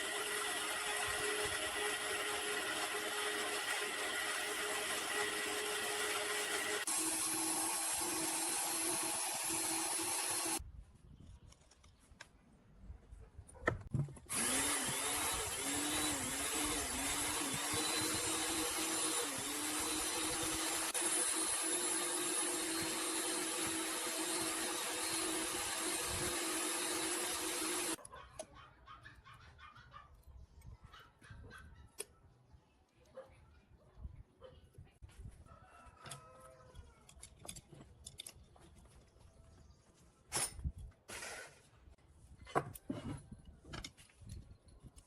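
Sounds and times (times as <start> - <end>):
electric power tool running: 0.0 - 10.6, 14.3 - 28.0.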